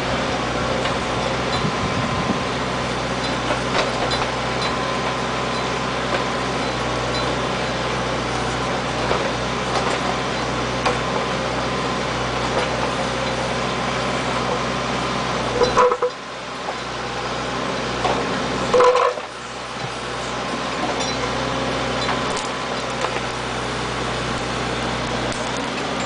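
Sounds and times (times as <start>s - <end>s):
backhoe engine running: 0.0s - 26.0s.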